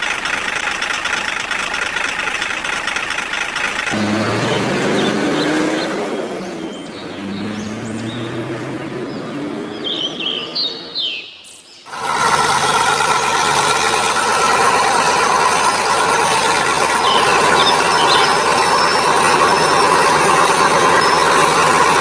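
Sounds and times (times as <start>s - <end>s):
engine-like drone: 0.0s - 11.2s, 11.9s - 22.0s
birds chirping: 3.7s - 22.0s
mechanical whirring: 11.9s - 22.0s.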